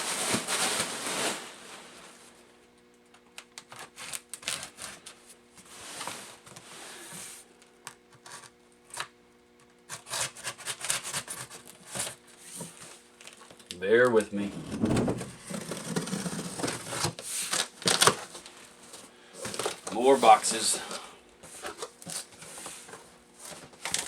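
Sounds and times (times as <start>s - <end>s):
cardboard scraping rustle: 0.0s - 2.3s, 3.7s - 7.4s, 14.1s - 24.0s.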